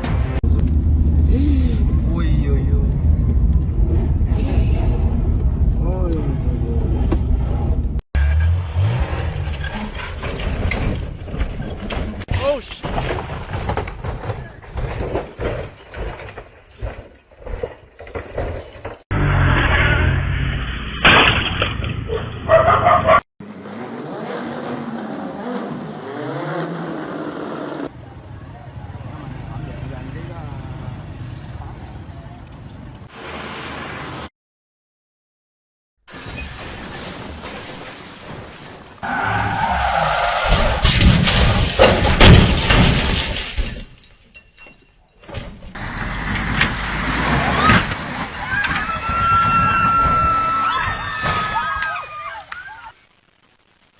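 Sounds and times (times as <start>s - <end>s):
vehicle noise: 0.0s - 12.3s, 13.2s - 34.3s, 45.6s - 50.7s
car crash: 8.2s - 22.0s, 36.1s - 44.1s, 45.4s - 52.0s
vehicle engine revving: 23.4s - 28.2s
tyre squeal: 32.4s - 33.1s
glass shattering: 36.1s - 39.0s, 40.8s - 45.1s.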